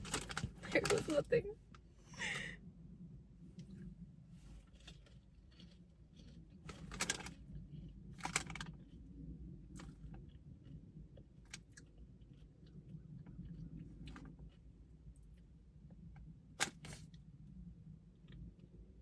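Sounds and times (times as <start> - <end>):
chewing crunchy snack: 4.6 - 15.6.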